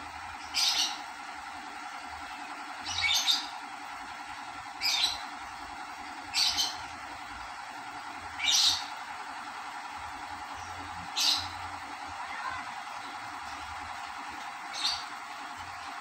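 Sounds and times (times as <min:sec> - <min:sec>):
steady hum: 0:00.0 - 0:16.0
bird chirping: 0:10.6 - 0:11.7, 0:14.7 - 0:15.1.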